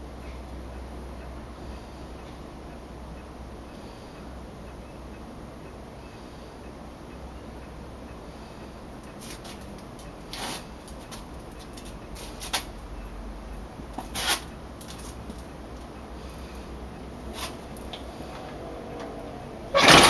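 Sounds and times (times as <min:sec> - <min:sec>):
clicks and rustles of handling: 0:09.0 - 0:12.8, 0:14.0 - 0:15.9.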